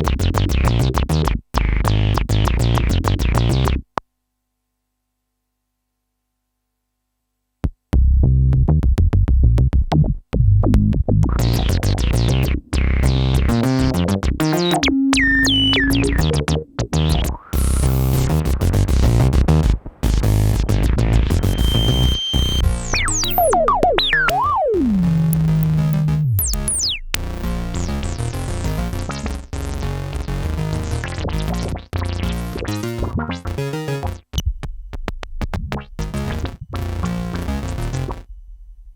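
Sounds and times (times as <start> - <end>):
synthesizer playing short notes: 14.4 - 18.5.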